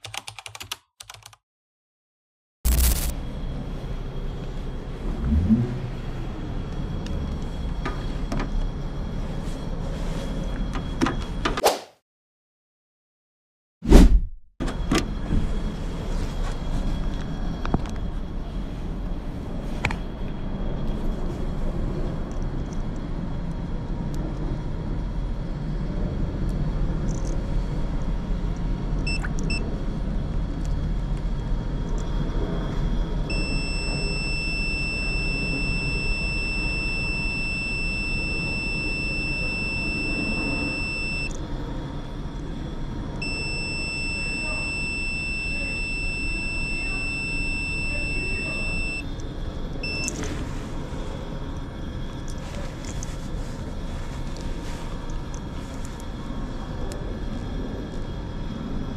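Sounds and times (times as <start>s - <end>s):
multimeter beeping: 2.7s - 3.1s, 33.3s - 41.4s, 43.2s - 49.1s, 49.8s - 50.3s
low rumble: 2.7s - 10.7s.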